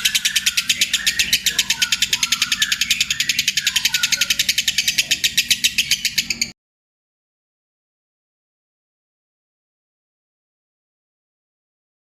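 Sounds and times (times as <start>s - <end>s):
lovebird chattering trill: 0.0s - 6.5s.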